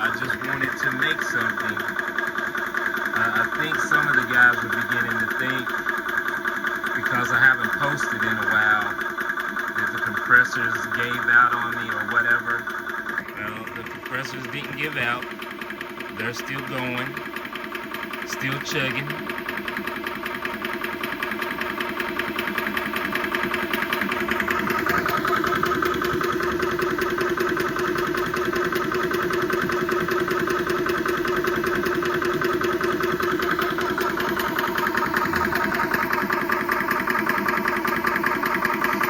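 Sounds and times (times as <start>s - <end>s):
air compressor pump chugging: 0.0s - 39.0s.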